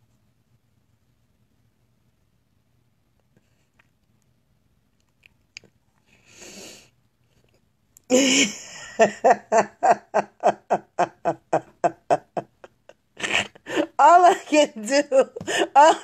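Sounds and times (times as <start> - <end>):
man laughing hard: 8.1 - 14.5.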